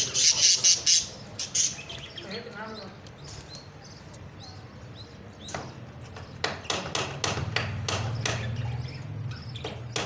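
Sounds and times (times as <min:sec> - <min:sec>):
sharp knocks: 0:05.5 - 0:08.6.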